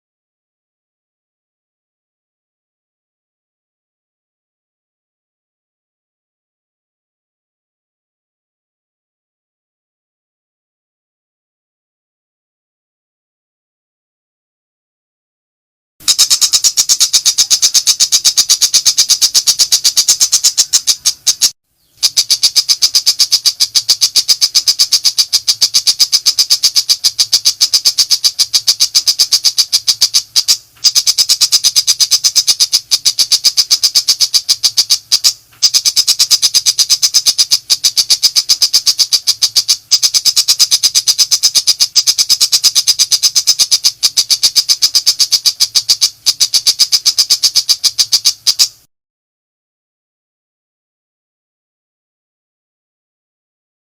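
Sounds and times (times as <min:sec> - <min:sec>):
shrike singing rapid chatter: 0:16.0 - 0:48.8.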